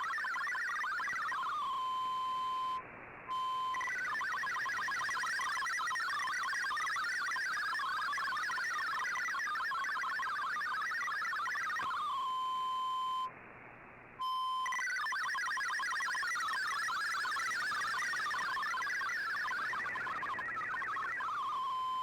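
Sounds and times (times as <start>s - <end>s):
digital data signal warbling tones: 3.6s - 12.1s, 14.6s - 22.0s.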